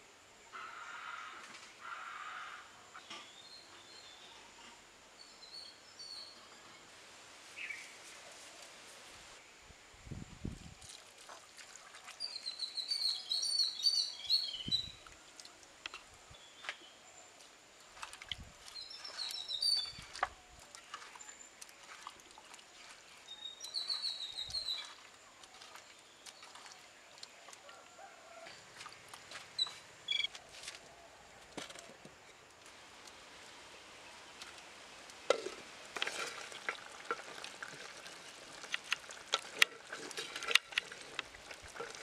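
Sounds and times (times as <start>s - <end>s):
songbird chirping: 0.5s - 9.7s, 12.1s - 35.4s
potatoes clicking in clay pot: 35.3s - 42.0s.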